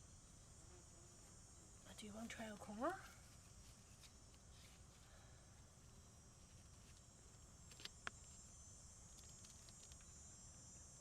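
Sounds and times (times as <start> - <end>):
insect chirring: 0.1 - 11.0
small clicks: 9.1 - 10.1.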